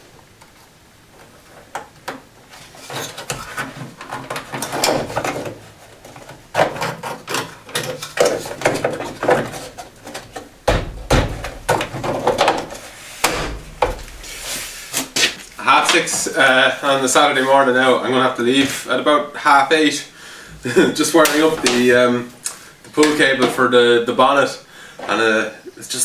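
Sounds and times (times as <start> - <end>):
tools and parts knocking: 6.5 - 16.0.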